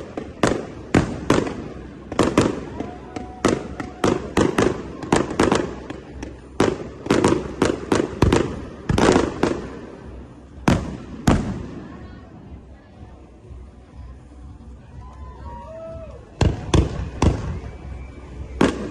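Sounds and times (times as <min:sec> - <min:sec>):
fireworks bursting with bangs: 0:00.0 - 0:12.7, 0:16.3 - 0:18.9.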